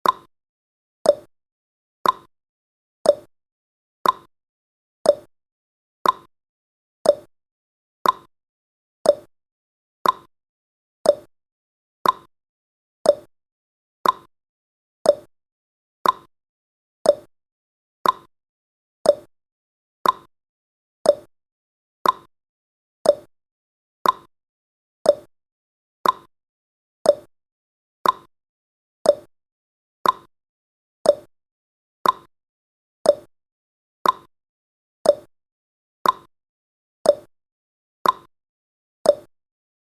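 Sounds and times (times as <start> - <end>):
clock-like timer ticking: 0.0 - 0.3, 1.1 - 1.3, 2.0 - 2.3, 3.1 - 3.3, 4.0 - 4.3, 5.1 - 5.3, 6.0 - 6.3, 7.1 - 7.3, 8.0 - 8.3, 9.1 - 9.3, 10.0 - 10.3, 11.1 - 11.3, 12.0 - 12.3, 13.1 - 13.3, 14.0 - 14.3, 15.1 - 15.3, 16.0 - 16.3, 17.0 - 17.3, 18.0 - 18.3, 19.0 - 19.3, 20.0 - 20.3, 21.0 - 21.3, 22.0 - 22.3, 23.0 - 23.3, 24.0 - 24.3, 25.0 - 25.3, 26.0 - 26.3, 27.0 - 27.3, 28.0 - 28.3, 29.0 - 29.3, 30.0 - 30.3, 31.0 - 31.3, 32.0 - 32.3, 33.0 - 33.3, 34.0 - 34.3, 35.0 - 35.3, 36.0 - 36.3, 37.1 - 37.3, 38.0 - 38.3, 39.1 - 39.3.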